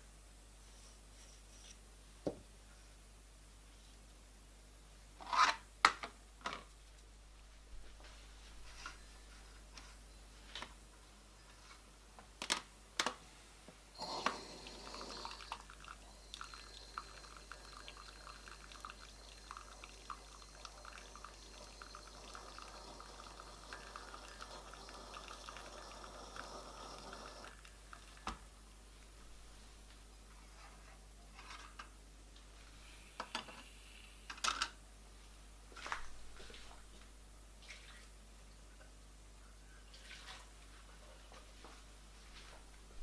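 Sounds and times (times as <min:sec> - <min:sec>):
espresso dripping into cup: 0:14.0 - 0:28.2.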